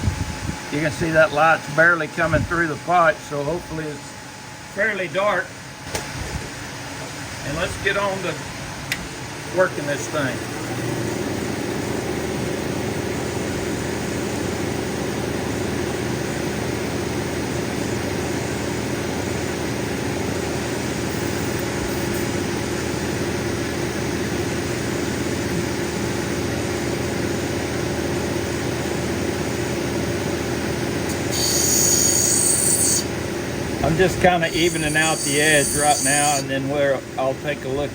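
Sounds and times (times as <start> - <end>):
grinding wheel grinding stone: 31.1 - 33.1, 33.8 - 36.6.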